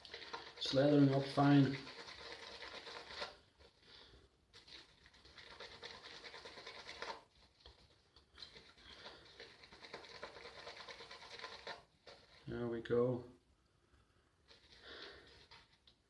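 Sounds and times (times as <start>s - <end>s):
shaving brush wet swishing: 0.0s - 3.7s, 4.5s - 12.5s.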